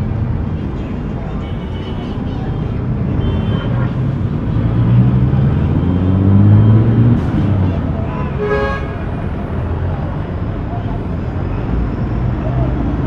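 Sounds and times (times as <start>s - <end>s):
traffic rumble: 0.0s - 13.0s
vehicle accelerating past: 4.4s - 7.7s.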